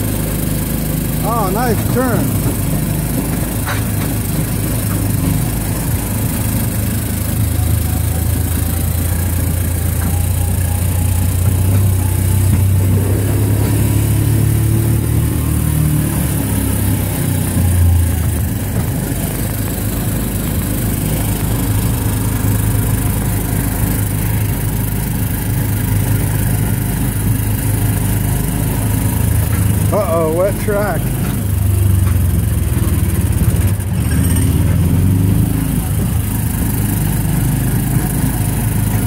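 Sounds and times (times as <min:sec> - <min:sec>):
small gasoline engine droning: 0:00.0 - 0:39.0.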